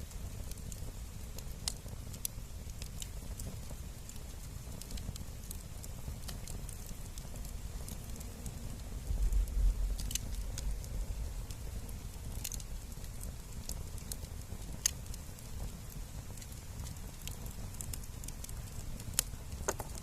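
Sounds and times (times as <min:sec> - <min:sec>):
wood fire crackling: 0:00.0 - 0:20.0
low rumble: 0:08.6 - 0:12.2.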